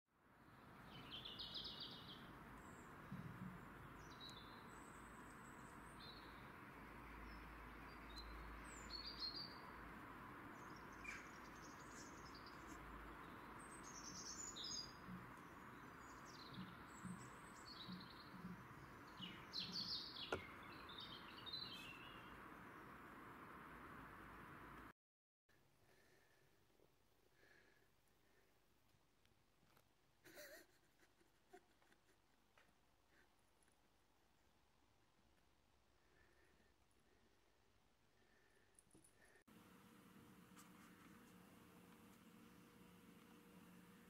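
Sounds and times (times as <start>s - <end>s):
small birds chirping: 0.6s - 23.1s.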